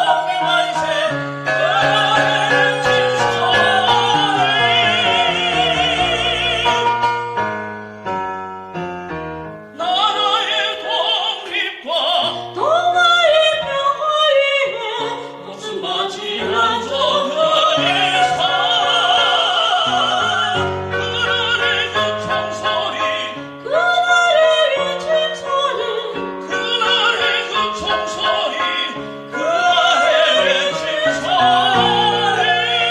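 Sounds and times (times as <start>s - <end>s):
person singing with vibrato: 0.0s - 7.1s, 9.8s - 32.9s
instrumental backing with bass: 0.8s - 9.8s.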